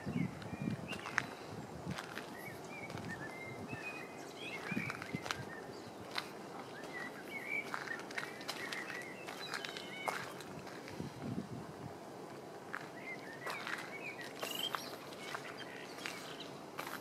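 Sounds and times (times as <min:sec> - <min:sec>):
small birds chirping: 0:00.0 - 0:11.1, 0:12.7 - 0:17.0
soft footsteps: 0:04.6 - 0:11.4, 0:12.2 - 0:17.0.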